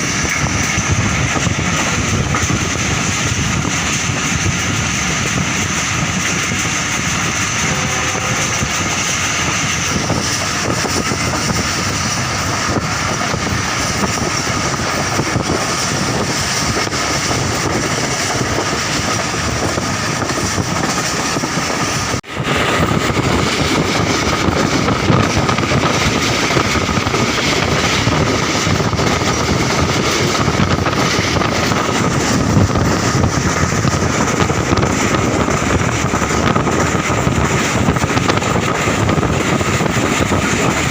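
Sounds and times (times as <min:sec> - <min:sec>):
rushing air: 0:00.0 - 0:40.9
train wheels on track: 0:00.0 - 0:40.9.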